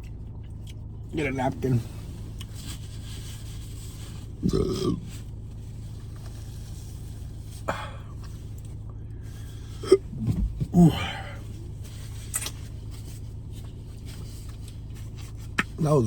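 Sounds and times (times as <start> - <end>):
steady low hum: 0.0 - 16.0
person grunting or burping: 4.4 - 5.1, 9.8 - 11.4.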